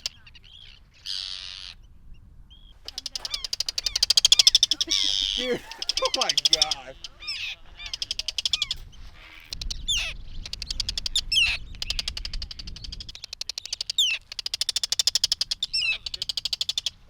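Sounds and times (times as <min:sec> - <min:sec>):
wind rumble on microphone: 0:00.0 - 0:05.9, 0:07.0 - 0:13.3
terns calling: 0:00.0 - 0:17.0.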